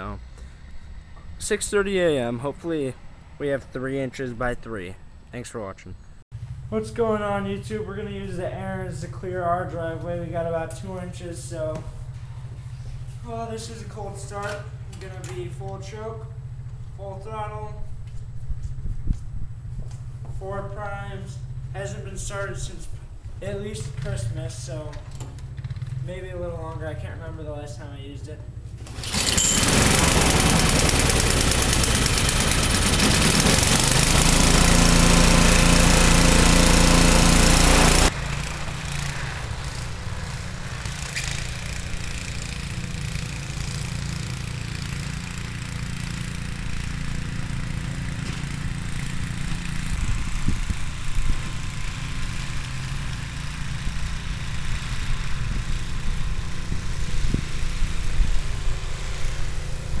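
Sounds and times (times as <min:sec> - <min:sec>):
snowblower engine running: 0:28.5 - 1:00.0.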